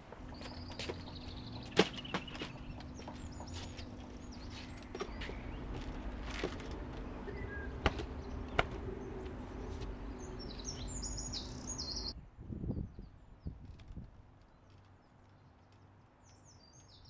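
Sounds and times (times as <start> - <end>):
birds chirping: 0.1 - 13.6.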